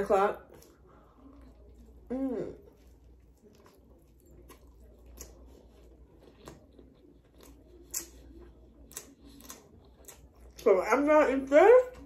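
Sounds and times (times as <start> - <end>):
person chewing food: 0.5 - 10.7.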